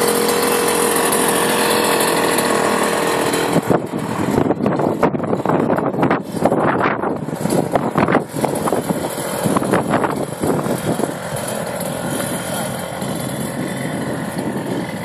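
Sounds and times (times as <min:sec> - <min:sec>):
motor vehicle running loudly: 0:00.0 - 0:15.0.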